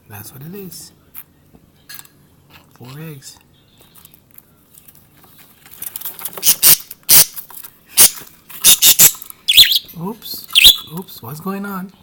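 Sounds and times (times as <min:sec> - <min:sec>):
budgerigars chirping: 0:06.4 - 0:07.4, 0:08.0 - 0:09.9, 0:10.5 - 0:11.0.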